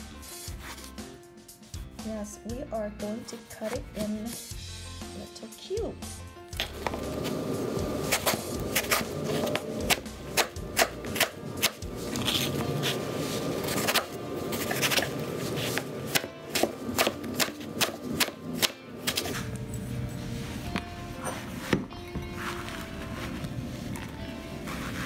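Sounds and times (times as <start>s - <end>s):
knife chopping on cutting board: 8.0s - 13.0s, 13.6s - 19.4s.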